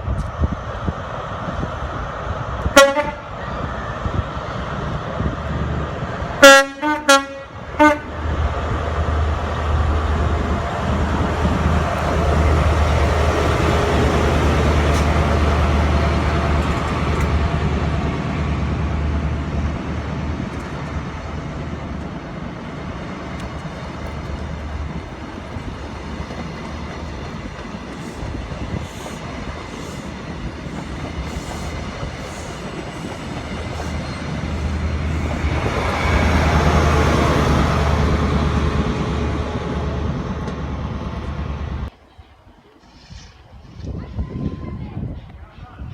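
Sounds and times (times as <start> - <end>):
train running through: 0.0 - 45.9
train horn toots: 2.7 - 3.3, 6.4 - 8.2.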